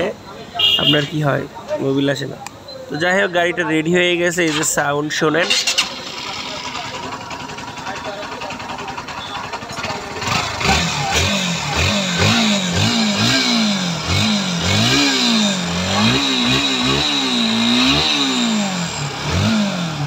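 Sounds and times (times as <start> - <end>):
motorcycle engine revving: 5.4 - 20.0.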